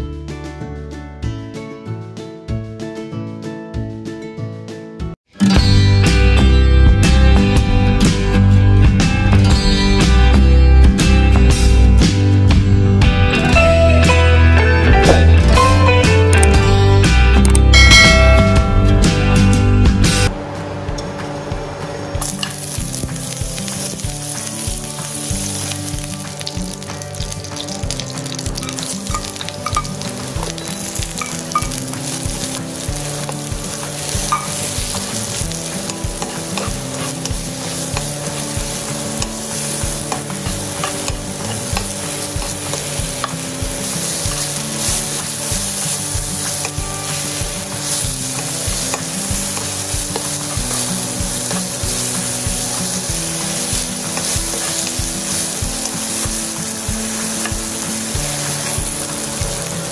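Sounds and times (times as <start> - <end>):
mushrooms sizzling in frying pan: 22.1 - 59.9.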